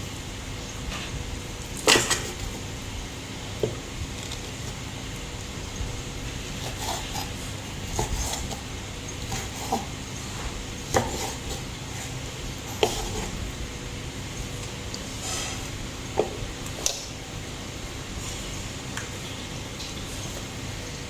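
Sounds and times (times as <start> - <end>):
steady low hum: 0.0 - 21.0
dishes and utensils clinking: 15.1 - 17.1.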